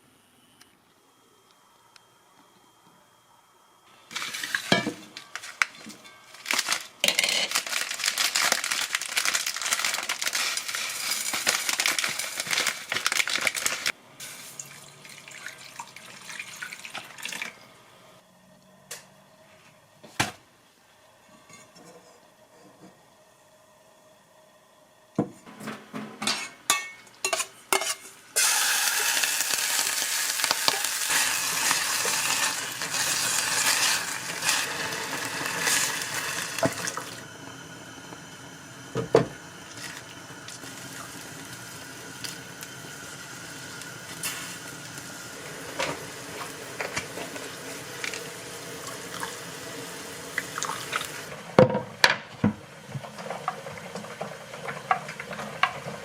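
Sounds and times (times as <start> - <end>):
food sizzling in a pan: 4.0 - 16.7, 26.4 - 51.4
utensils clinking and scraping: 4.1 - 8.5, 25.5 - 28.2.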